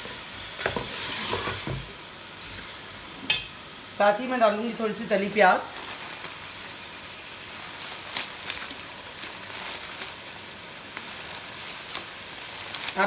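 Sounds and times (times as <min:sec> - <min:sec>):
chicken frying in oil: 0:00.0 - 0:13.0
sharp crackles: 0:05.5 - 0:13.0.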